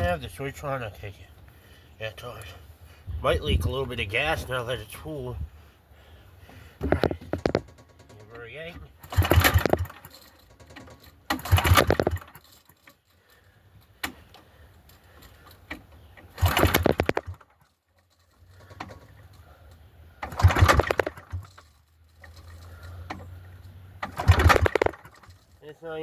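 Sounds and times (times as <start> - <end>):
generator recoil cranking: 6.8 - 25.7.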